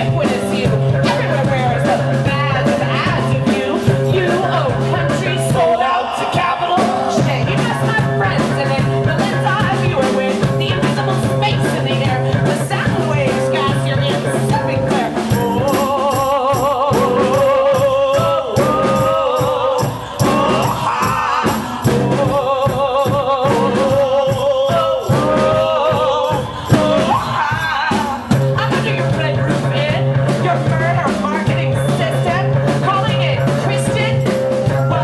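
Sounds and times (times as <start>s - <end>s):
drum kit beat: 0.0s - 35.0s
person singing: 0.0s - 35.0s.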